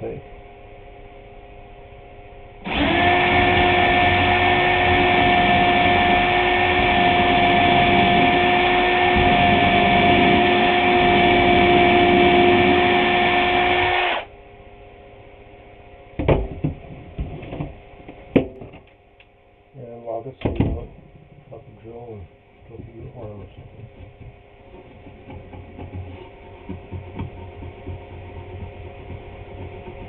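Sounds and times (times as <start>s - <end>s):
electric drill boring into wood: 2.6s - 14.3s.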